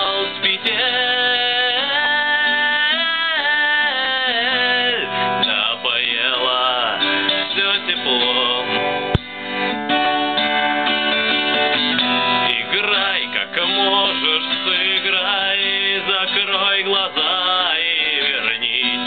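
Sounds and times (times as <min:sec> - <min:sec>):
acoustic guitar strumming: 0:00.0 - 0:19.0
single knock: 0:09.1 - 0:09.3.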